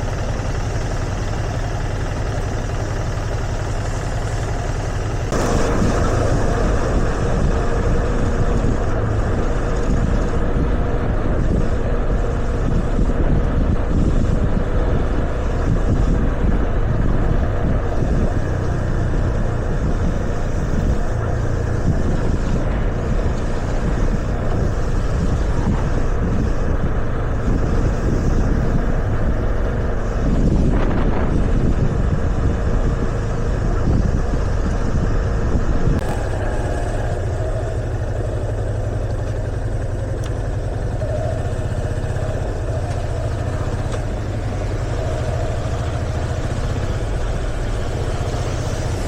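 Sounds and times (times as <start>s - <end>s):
motorcycle engine running: 0.0s - 49.0s
wind rushing over microphone: 0.0s - 49.0s.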